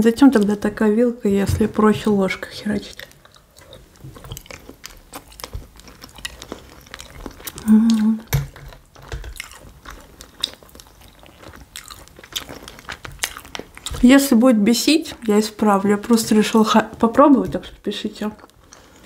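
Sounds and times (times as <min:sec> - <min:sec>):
person chewing and biting: 0:03.0 - 0:14.0.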